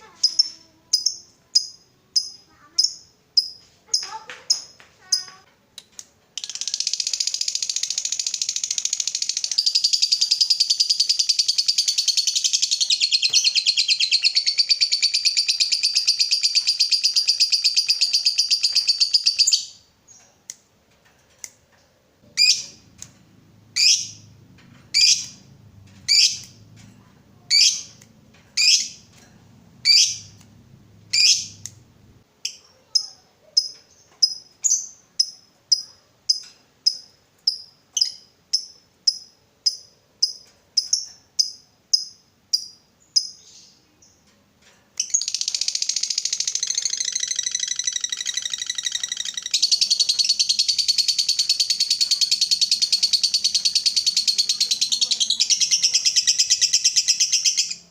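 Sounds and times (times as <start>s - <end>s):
lovebird chattering trill: 6.4s - 20.2s, 22.4s - 22.8s, 23.8s - 24.3s, 24.9s - 26.6s, 27.4s - 28.0s, 28.6s - 29.1s, 29.8s - 30.4s, 31.1s - 31.8s, 45.0s - 57.9s
lovebird sharp chirps: 6.4s - 20.3s, 22.3s - 23.2s, 23.8s - 26.6s, 27.5s - 30.5s, 31.1s - 31.8s, 32.4s - 44.2s, 45.0s - 57.9s.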